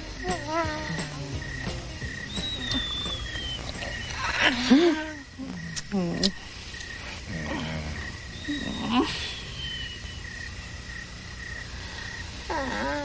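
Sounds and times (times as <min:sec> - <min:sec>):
wavering whimpering voice: 0:00.0 - 0:01.6, 0:02.3 - 0:06.5, 0:07.1 - 0:10.2, 0:12.4 - 0:13.0
crickets chirping: 0:00.0 - 0:13.0.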